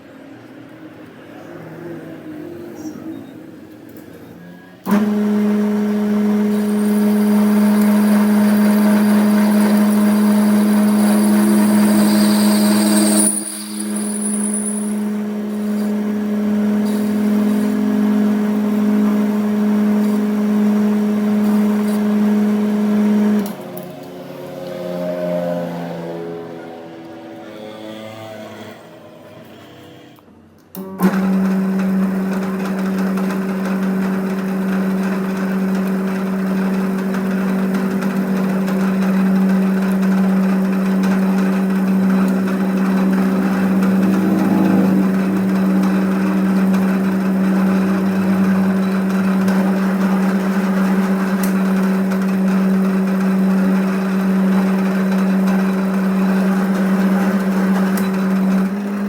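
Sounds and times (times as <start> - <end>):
workshop machine humming: 0.0 - 59.0.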